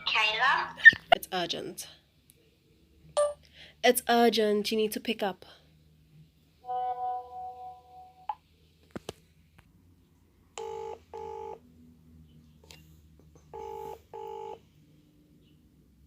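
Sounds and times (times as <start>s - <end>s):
phone ringback tone: 10.6s - 11.6s, 13.5s - 14.6s.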